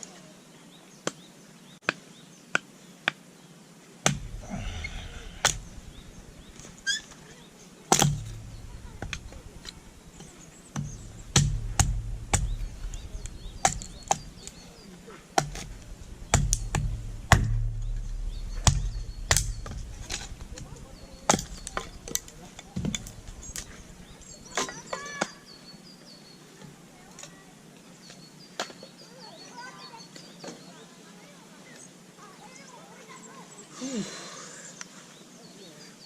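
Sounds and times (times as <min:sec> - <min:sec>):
firewood being split: 0:04.0 - 0:25.2
low rumble: 0:04.2 - 0:06.8, 0:08.0 - 0:14.5, 0:15.5 - 0:24.5.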